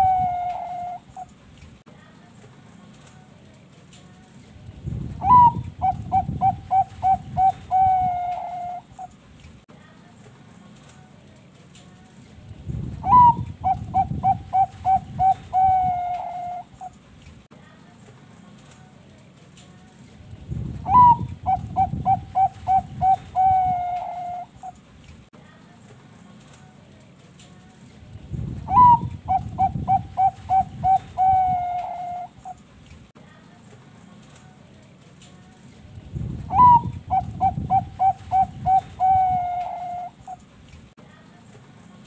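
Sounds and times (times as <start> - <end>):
dove cooing song: 0.0 - 1.4, 5.2 - 9.2, 13.0 - 17.0, 20.8 - 24.8, 28.6 - 32.6, 36.5 - 40.4.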